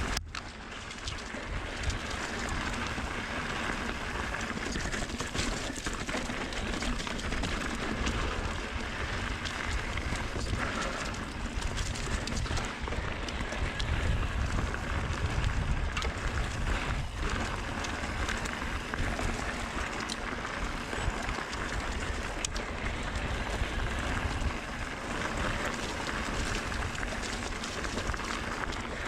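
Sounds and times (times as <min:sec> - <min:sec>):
bike tyre noise on dirt: 0:00.0 - 0:29.0
wind rush on microphone: 0:06.6 - 0:29.0.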